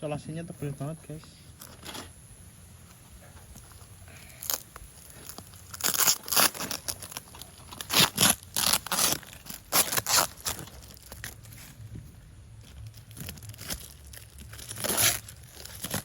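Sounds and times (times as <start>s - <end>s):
packing tape ripping: 4.2s - 11.8s, 12.8s - 16.0s.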